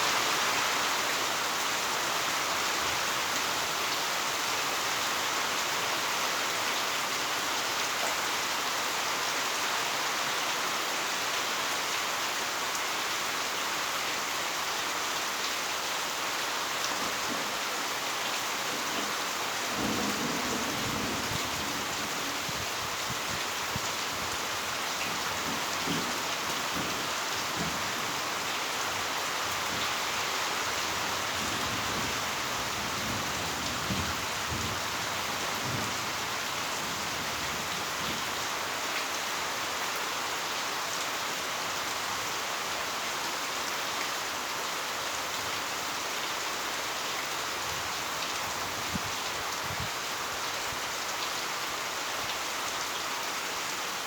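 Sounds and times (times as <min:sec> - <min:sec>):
heavy rain pouring: 0:00.0 - 0:54.0
thunder rumbling: 0:18.8 - 0:28.4.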